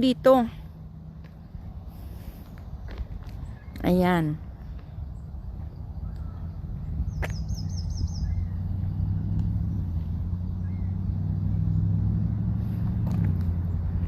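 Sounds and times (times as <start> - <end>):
vehicle engine running: 0.0 - 14.0
bird chirping: 2.4 - 11.9.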